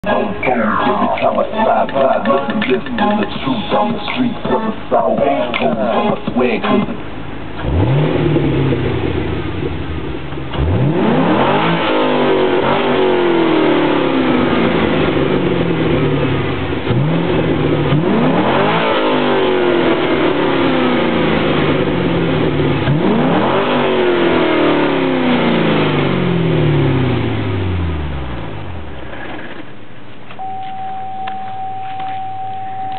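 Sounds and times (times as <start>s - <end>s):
steady high tone: 0.0s - 7.2s, 30.4s - 32.9s
car engine revving: 0.0s - 29.4s.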